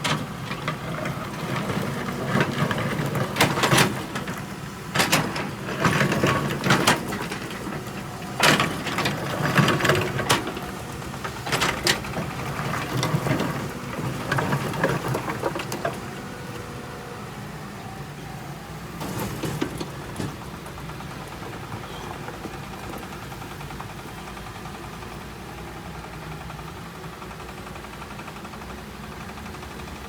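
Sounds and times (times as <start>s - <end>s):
machine clanking and rattling: 0.0s - 16.6s, 19.0s - 24.4s
diesel engine running: 0.0s - 30.0s.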